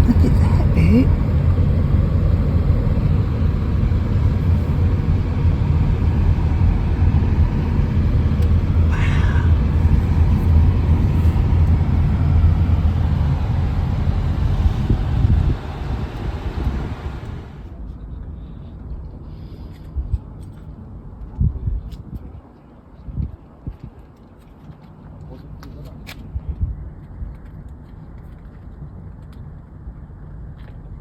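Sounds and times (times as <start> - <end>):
car road and engine noise: 0.0 - 22.8.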